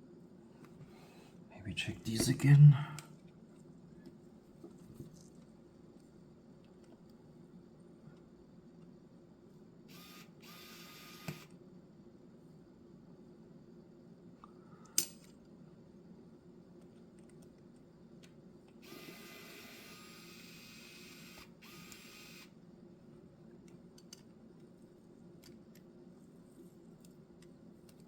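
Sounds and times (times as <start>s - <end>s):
clicks of small parts and tools: 14.8s - 15.4s, 23.7s - 24.7s.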